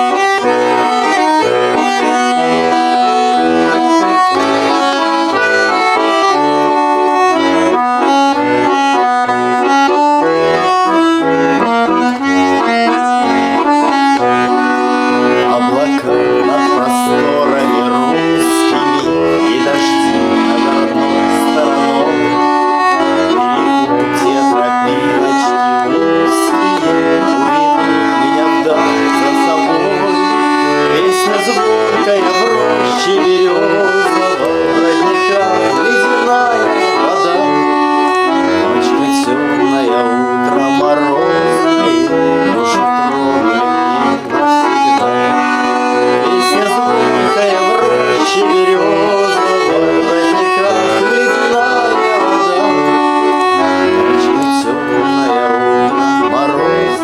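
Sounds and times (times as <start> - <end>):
button accordion folk melody: 0.0 - 57.0.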